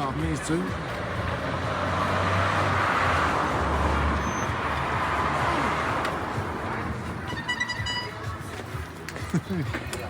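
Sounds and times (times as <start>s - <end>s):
motor vehicle passing: 0.7s - 7.2s.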